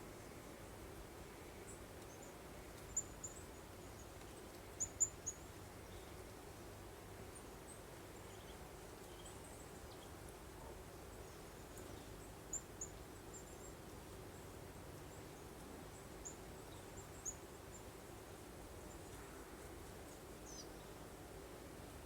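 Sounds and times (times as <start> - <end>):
faint breeze: 0.0 - 22.0.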